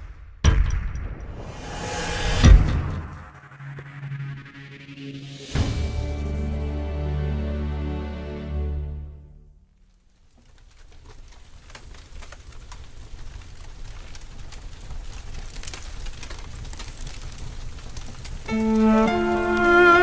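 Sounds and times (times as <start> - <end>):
low rumble: 1.2 - 7.0
pitched music: 3.4 - 9.0, 18.5 - 20.0
rain pattering: 9.7 - 20.0.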